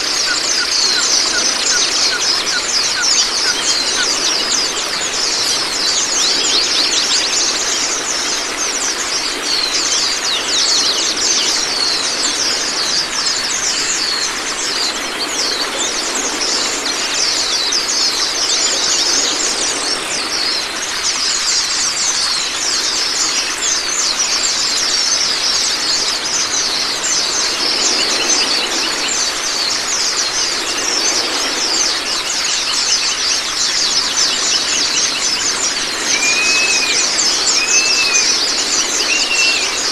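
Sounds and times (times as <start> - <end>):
running water: 0.0 - 39.9
bird high fast twittering: 32.6 - 39.9.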